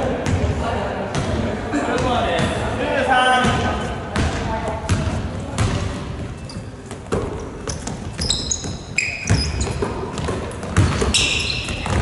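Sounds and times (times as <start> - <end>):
ball bouncing on gym floor: 3.4 - 6.2, 6.8 - 12.0
shoes squeaking on court: 4.8 - 12.0.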